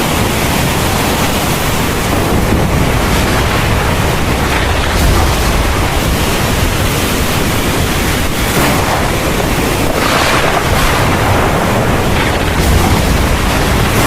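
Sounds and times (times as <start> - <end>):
heavy rain pouring: 0.0 - 14.0
deep low rumble: 2.1 - 14.0.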